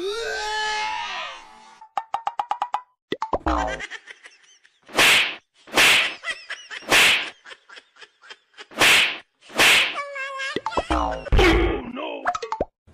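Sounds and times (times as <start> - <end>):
swish whooshes: 8.8 - 10.0.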